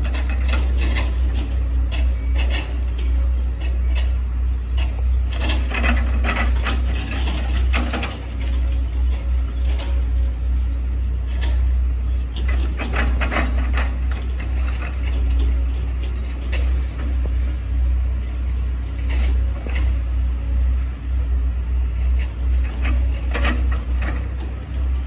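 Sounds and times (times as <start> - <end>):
excavator diesel engine droning: 0.0 - 25.0
sharp knocks and crackles: 22.1 - 24.9.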